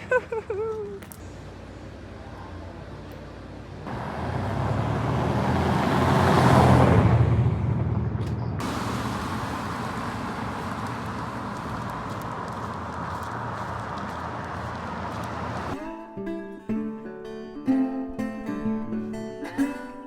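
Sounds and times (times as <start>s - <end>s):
traffic hum: 0.0s - 15.8s
vehicle passing by: 3.6s - 15.8s.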